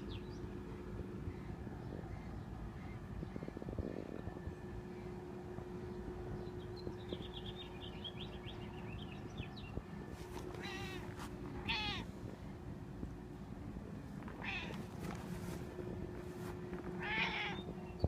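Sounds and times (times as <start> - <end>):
cat meowing: 10.5 - 12.1, 14.3 - 15.0, 17.0 - 17.7.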